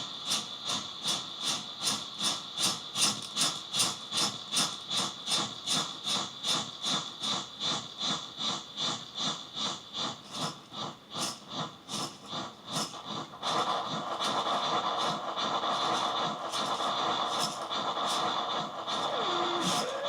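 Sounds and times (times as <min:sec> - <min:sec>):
distorted rhythmic pulsing: 0:13.3 - 0:20.0
dense wash of noise: 0:13.4 - 0:20.0.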